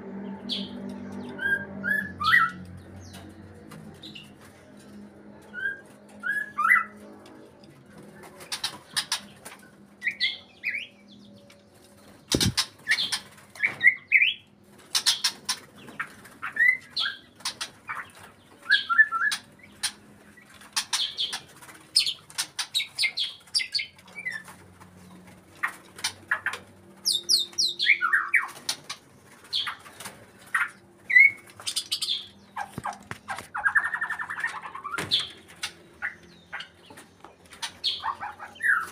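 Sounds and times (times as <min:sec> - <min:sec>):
sharp bird clicks: 0:12.3 - 0:12.7.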